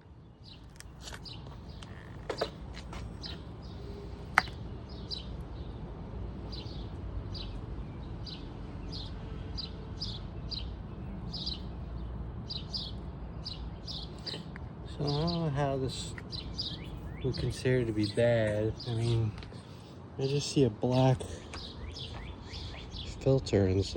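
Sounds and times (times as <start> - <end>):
small bird chirping: 0.4 - 5.7, 12.5 - 19.8.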